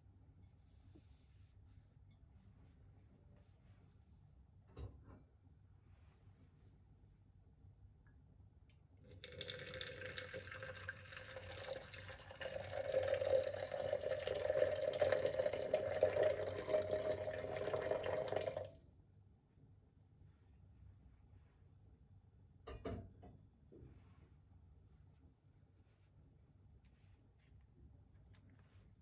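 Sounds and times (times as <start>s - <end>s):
tap water filling a container: 9.1s - 18.8s.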